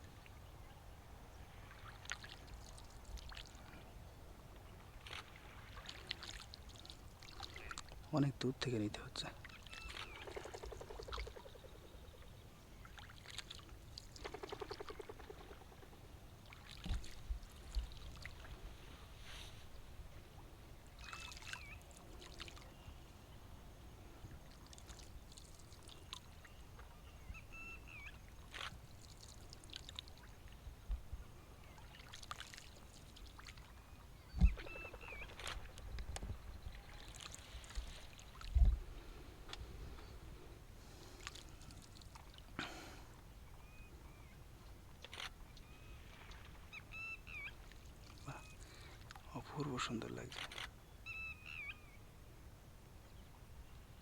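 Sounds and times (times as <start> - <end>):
waterbirds calling: 0.0 - 52.1
water dripping and splashing: 5.2 - 8.0, 32.0 - 33.6.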